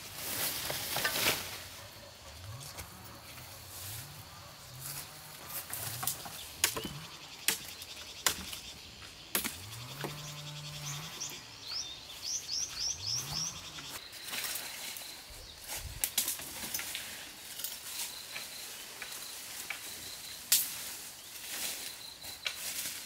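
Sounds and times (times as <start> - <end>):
small bird chirping: 6.0 - 16.0.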